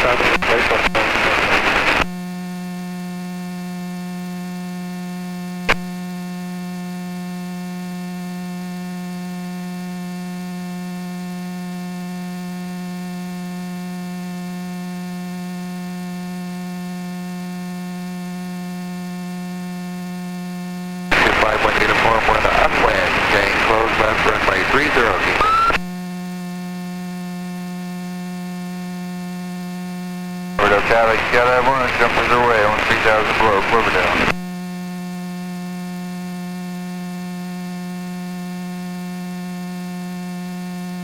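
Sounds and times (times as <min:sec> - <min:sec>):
intercom electrical hum: 0:00.0 - 0:02.2, 0:21.1 - 0:25.9, 0:30.6 - 0:34.5.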